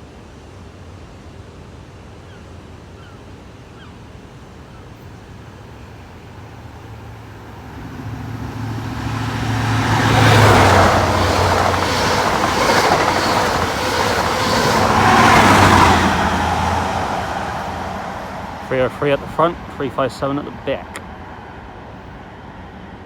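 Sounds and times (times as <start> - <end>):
diesel train engine drone: 3.9 - 23.0
train wheels on rails: 4.9 - 23.0.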